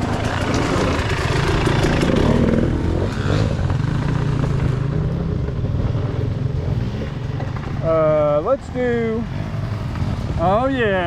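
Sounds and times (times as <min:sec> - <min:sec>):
dirt bike engine revving: 0:00.0 - 0:07.8.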